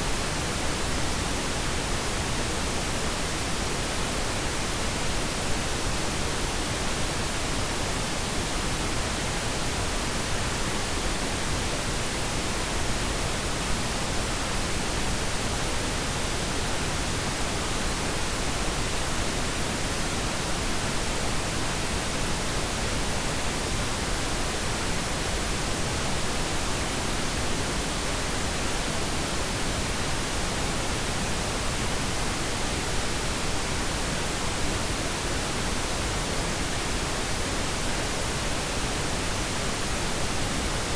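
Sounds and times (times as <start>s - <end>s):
steady pink noise hiss: 0.0s - 40.9s.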